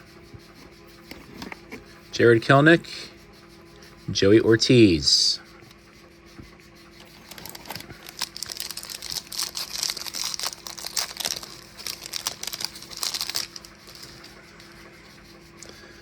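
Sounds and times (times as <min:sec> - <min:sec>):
foil wrapper crinkling and tearing: 0:07.2 - 0:14.3.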